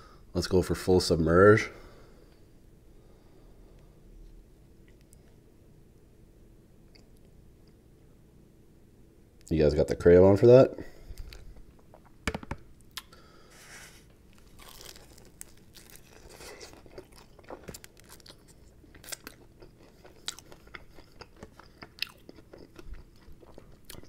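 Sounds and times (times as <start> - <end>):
chewing chicken wing: 14.4 - 24.0.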